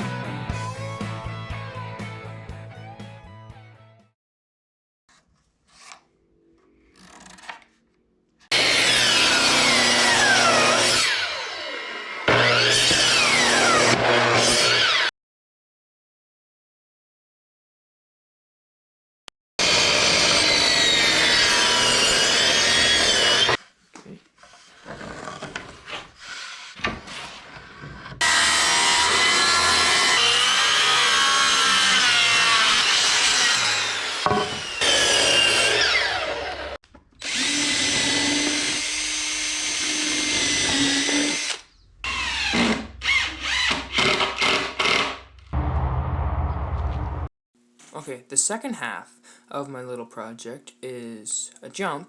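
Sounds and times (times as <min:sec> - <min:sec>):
power drill whining: 0:08.5 - 0:15.1, 0:28.2 - 0:45.5.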